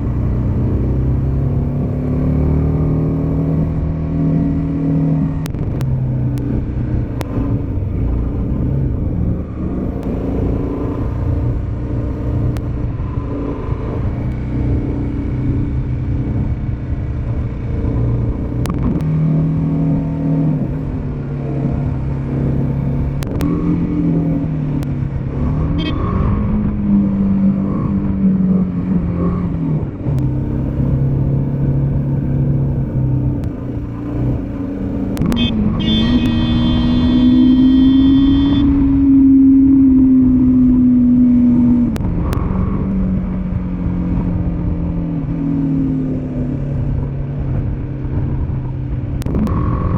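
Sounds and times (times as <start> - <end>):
motorcycle engine running: 0.0 - 49.9
sharp clicks: 23.2 - 23.5, 35.1 - 36.9.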